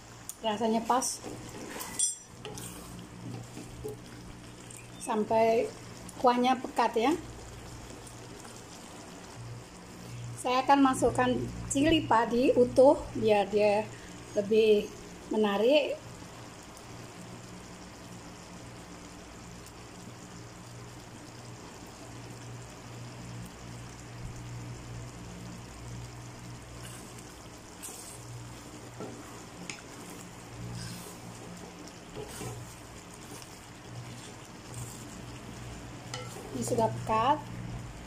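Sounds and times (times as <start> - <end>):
gravy bubbling in a wok: 0.0 - 38.0.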